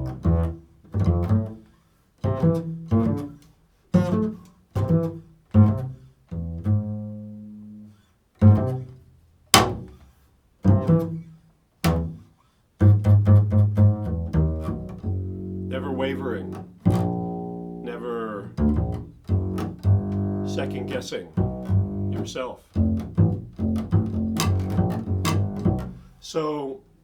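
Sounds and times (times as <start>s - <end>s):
low plucked string instrument: 0.0s - 1.6s, 4.0s - 10.0s, 10.7s - 11.3s, 11.9s - 12.2s, 12.8s - 26.1s.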